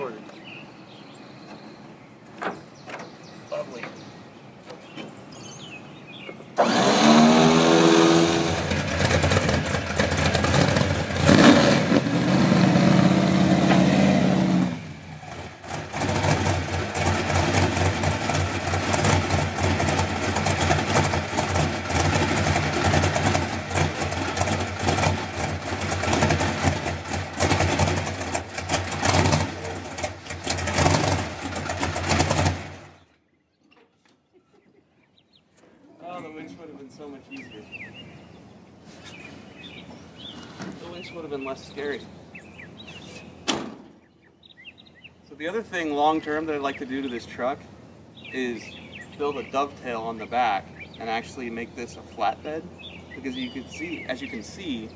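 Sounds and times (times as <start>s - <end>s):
car engine starting and revving: 6.6s - 33.1s.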